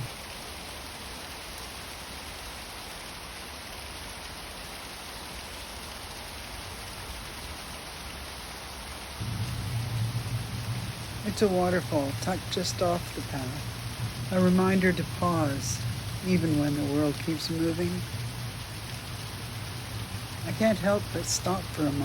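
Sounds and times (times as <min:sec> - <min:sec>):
waterfall rushing: 0:00.0 - 0:00.2, 0:07.1 - 0:22.0
low hum: 0:09.2 - 0:22.0.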